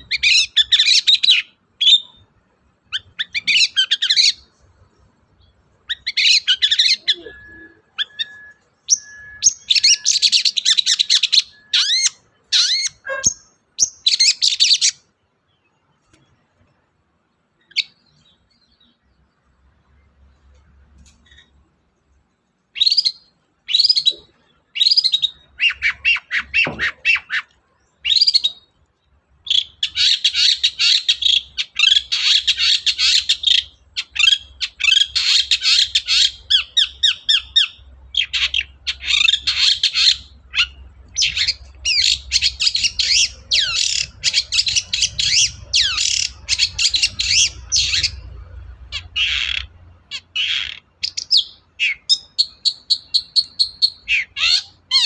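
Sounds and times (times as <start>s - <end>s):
shrike calling and singing: 0.0s - 16.7s, 17.4s - 20.4s, 21.0s - 55.0s.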